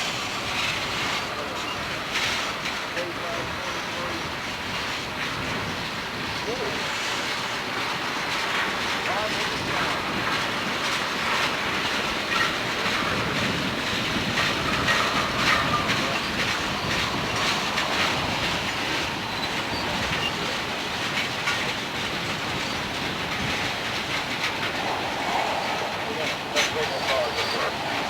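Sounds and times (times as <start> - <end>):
train wheels clicking over rail joints: 0.0 - 28.0
train wheels squealing: 11.4 - 28.0.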